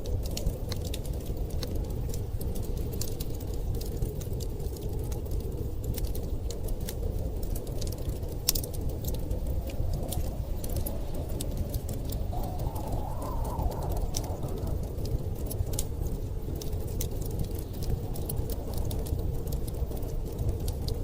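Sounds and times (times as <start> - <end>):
storm wind rumbling: 0.0 - 21.0
wood fire crackling: 0.0 - 21.0
wind whistle: 12.1 - 15.7.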